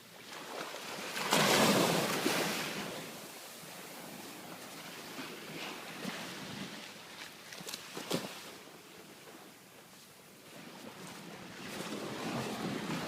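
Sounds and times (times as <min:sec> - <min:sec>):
sea waves breaking: 0:00.1 - 0:13.0.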